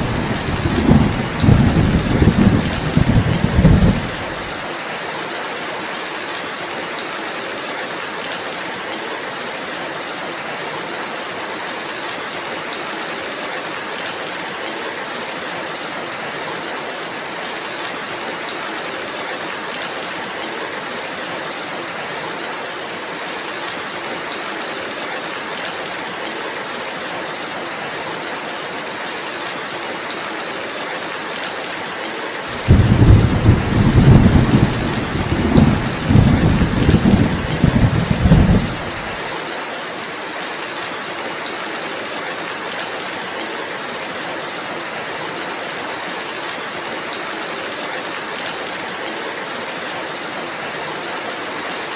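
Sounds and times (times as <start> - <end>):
thunder rumbling: 0.0 - 4.5, 32.5 - 39.2
steady rainfall: 0.0 - 51.9.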